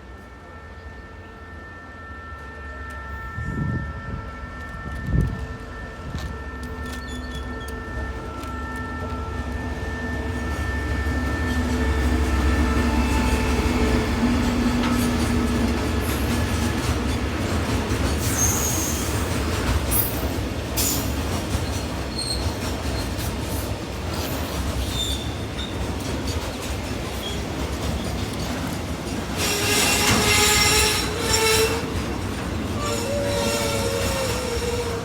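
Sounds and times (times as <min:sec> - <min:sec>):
freight train rumbling past: 0:00.0 - 0:35.0
high wheel squeals: 0:04.8 - 0:15.3, 0:18.2 - 0:19.3, 0:29.3 - 0:35.0.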